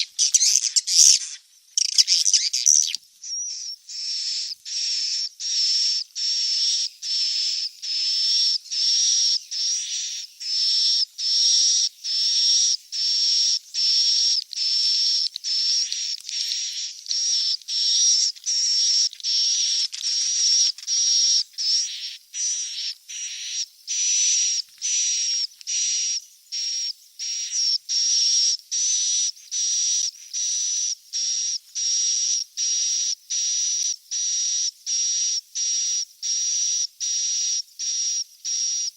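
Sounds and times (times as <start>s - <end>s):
bird chick chirping: 0.0s - 10.1s.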